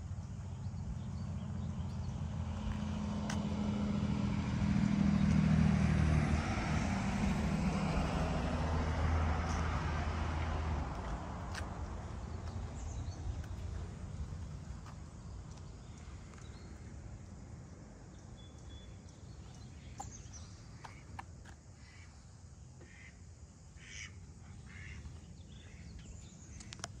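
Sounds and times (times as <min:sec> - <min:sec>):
birds calling: 0:18.4 - 0:22.2, 0:23.8 - 0:27.0.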